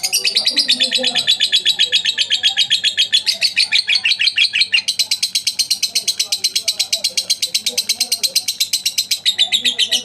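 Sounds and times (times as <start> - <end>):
lovebird chirping rapidly: 0.0 - 10.0.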